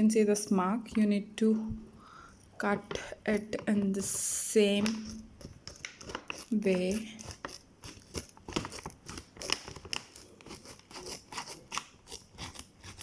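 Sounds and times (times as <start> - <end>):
scissors snipping plastic packet: 4.7 - 13.0.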